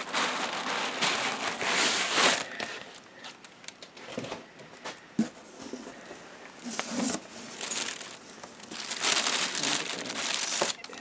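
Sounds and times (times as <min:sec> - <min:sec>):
packing material rustling: 0:00.0 - 0:04.4, 0:06.6 - 0:11.0.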